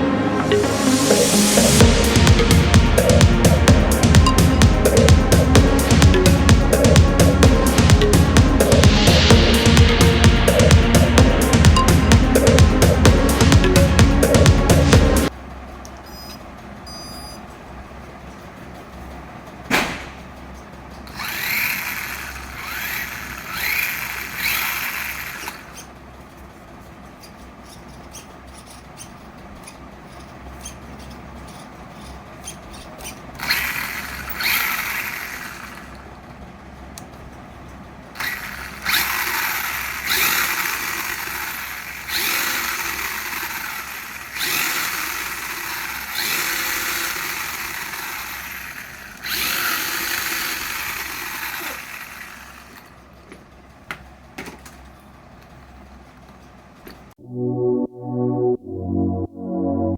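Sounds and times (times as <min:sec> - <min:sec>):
sharp click: 0:19.7 - 0:20.2
small electric motor whirring: 0:21.1 - 0:25.9, 0:31.5 - 0:36.1, 0:38.2 - 0:53.0.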